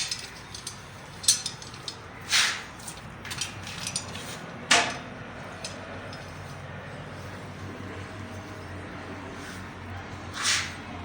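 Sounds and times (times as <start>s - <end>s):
hand tools knocking and clinking: 0.0s - 2.0s, 2.9s - 6.2s.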